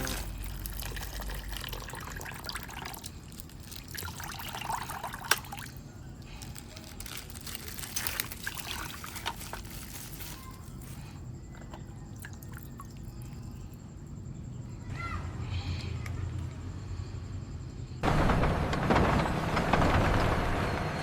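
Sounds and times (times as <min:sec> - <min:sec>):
plastic bag crinkling: 0:03.2 - 0:04.2, 0:06.3 - 0:11.1.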